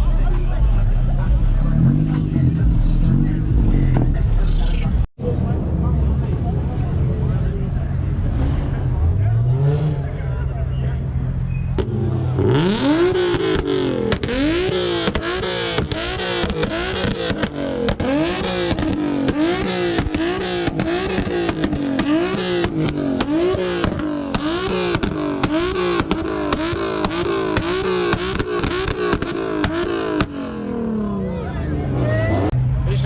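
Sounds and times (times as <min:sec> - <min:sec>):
car engine revving: 0:00.0 - 0:33.0
exhaust pops and crackles: 0:11.7 - 0:30.5.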